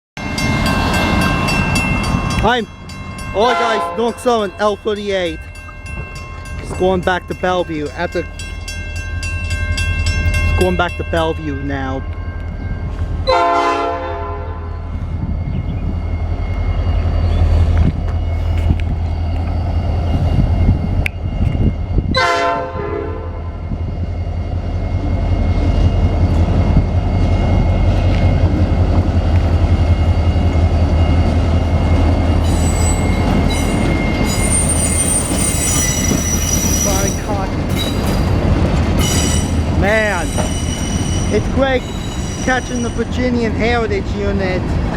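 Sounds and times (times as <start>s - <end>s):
diesel train engine rumble: 0.2s - 44.9s
train horn blasts: 3.4s - 4.2s, 13.2s - 14.9s, 22.1s - 23.6s
high-pitched wheel squeal: 32.4s - 38.2s, 39.0s - 43.0s.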